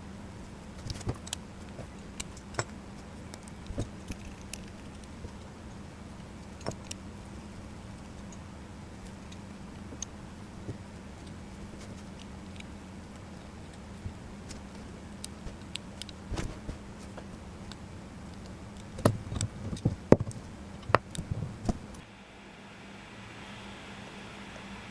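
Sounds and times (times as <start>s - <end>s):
steady low hum: 0.0s - 24.9s
metal parts clicking: 0.8s - 5.4s.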